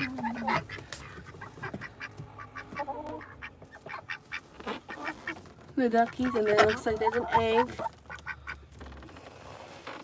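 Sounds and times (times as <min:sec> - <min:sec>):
ducks quacking: 0:00.0 - 0:08.6.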